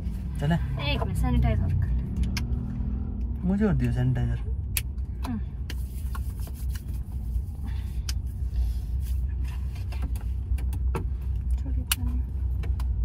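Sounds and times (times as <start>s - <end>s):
car engine idling: 0.0s - 13.0s
air conditioning running: 3.4s - 13.0s.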